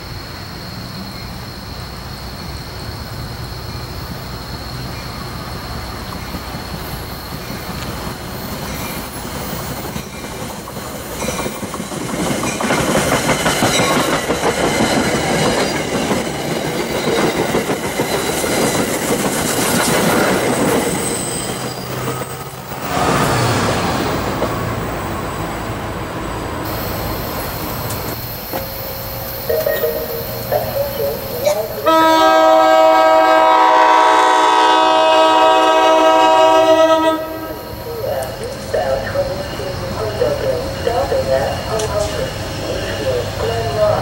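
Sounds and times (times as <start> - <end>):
commuter train passing: 0.0 - 44.0
wheels clattering over rails: 6.0 - 24.8.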